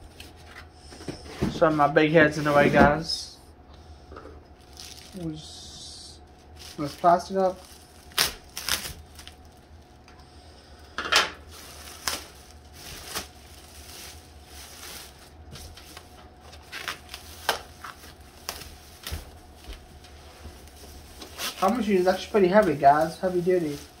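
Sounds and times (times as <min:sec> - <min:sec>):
packaging crinkling and rustling: 0:04.6 - 0:05.3, 0:06.3 - 0:10.0, 0:11.4 - 0:24.0.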